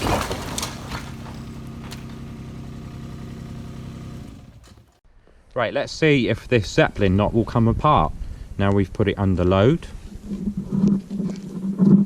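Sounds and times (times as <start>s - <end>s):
diesel engine idling: 0.7s - 5.0s.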